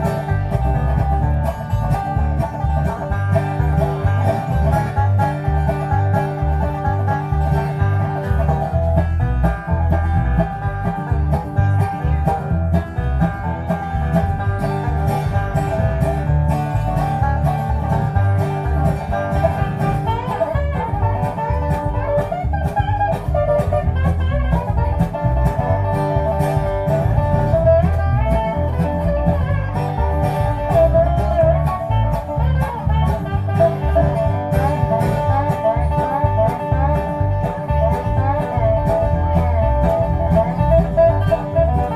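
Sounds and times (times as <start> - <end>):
acoustic guitar: 0.0 - 41.9
bluegrass string band music: 0.0 - 41.9
picked banjo: 0.0 - 41.9
steady low beat: 0.0 - 41.9.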